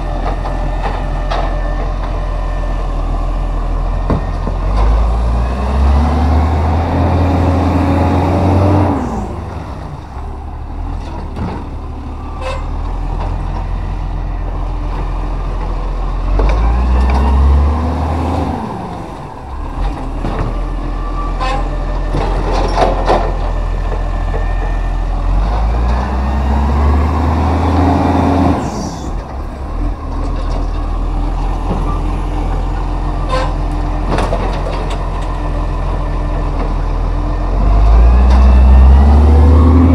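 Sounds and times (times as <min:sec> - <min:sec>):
truck diesel engine revving: 0:03.8 - 0:14.4, 0:15.2 - 0:30.3, 0:30.9 - 0:39.9
knocks and clatter: 0:19.8 - 0:20.6, 0:21.5 - 0:24.5, 0:33.3 - 0:35.4.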